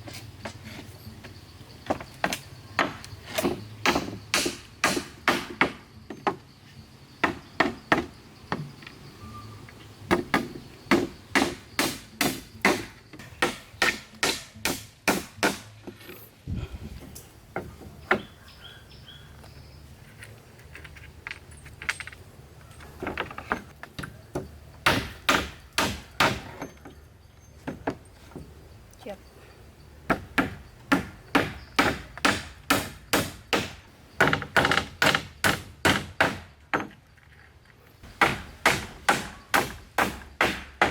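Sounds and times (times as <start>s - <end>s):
axe chopping wood: 1.9s - 6.4s, 10.1s - 15.8s, 24.4s - 26.6s, 30.1s - 36.9s, 38.2s - 40.9s.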